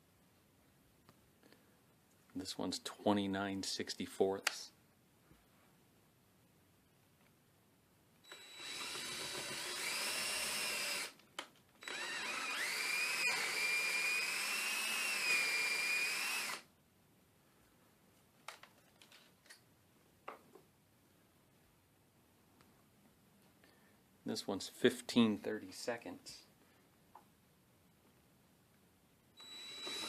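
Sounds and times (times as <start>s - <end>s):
electric drill boring wood: 8.3s - 11.2s, 11.8s - 16.6s, 29.4s - 30.0s.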